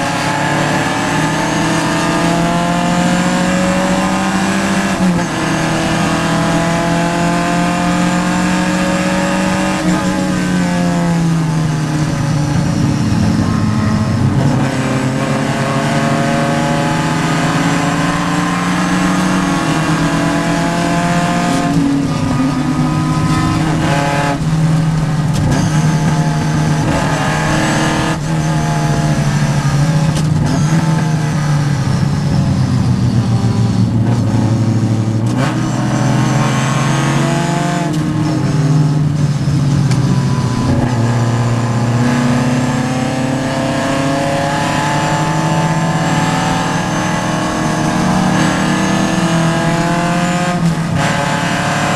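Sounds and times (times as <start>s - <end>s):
race car engine accelerating: 0.0s - 51.9s.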